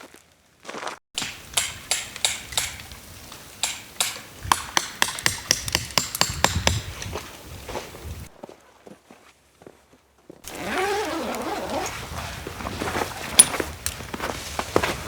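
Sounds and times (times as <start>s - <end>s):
sharp ringing knocks: 3.6s - 6.9s.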